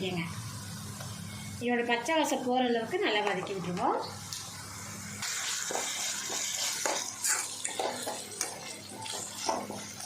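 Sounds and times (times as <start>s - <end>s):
onions sizzling in hot oil: 0.0s - 10.0s
spatula scraping and knocking pan: 5.5s - 10.0s.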